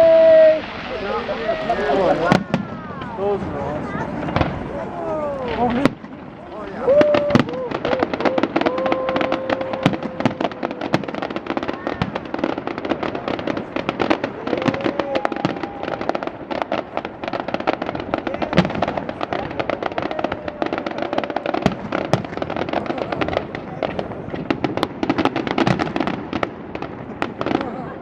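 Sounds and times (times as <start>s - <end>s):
fireworks crackling and banging: 0.0s - 28.0s
faint firework whistle: 14.7s - 16.3s.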